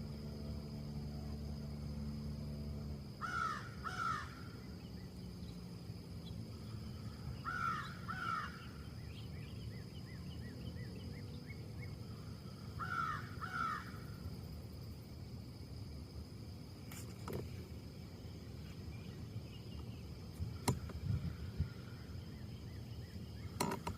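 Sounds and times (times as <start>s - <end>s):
crow cawing: 3.2s - 4.4s, 7.4s - 8.6s, 12.8s - 14.0s
small bird chirping: 4.6s - 12.0s, 18.6s - 23.9s
steady low rumble: 17.6s - 23.6s.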